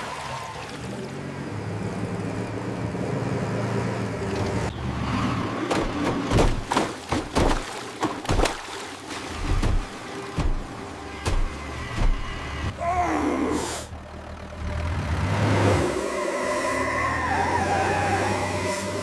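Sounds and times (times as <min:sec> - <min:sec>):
sharp irregular knocks: 0:05.7 - 0:08.6, 0:09.5 - 0:12.3
heavy vehicle engine running: 0:09.4 - 0:19.0.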